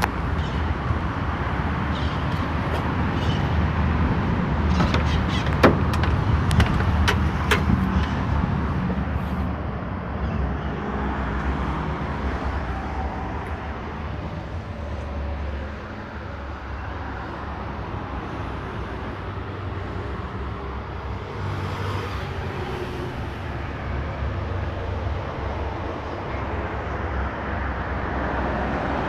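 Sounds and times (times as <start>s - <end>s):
diesel engine rumbling: 0.0s - 28.8s
sharp clicks or knocks: 4.7s - 8.2s.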